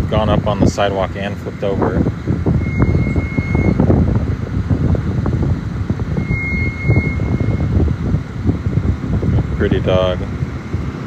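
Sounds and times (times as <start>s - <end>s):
street traffic rumble: 0.0s - 11.0s
wind buffeting microphone: 0.0s - 11.0s
steady high tone: 2.6s - 3.9s, 6.1s - 7.8s.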